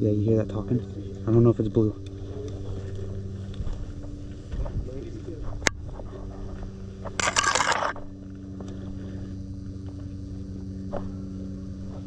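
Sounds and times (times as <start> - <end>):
steady low hum: 0.0 - 12.0
loud scraping rustle: 7.2 - 8.0.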